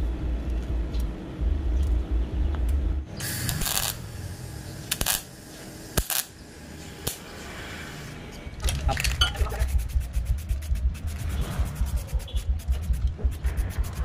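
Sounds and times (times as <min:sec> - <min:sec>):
low fast pulsing rhythm: 0:09.3 - 0:14.0.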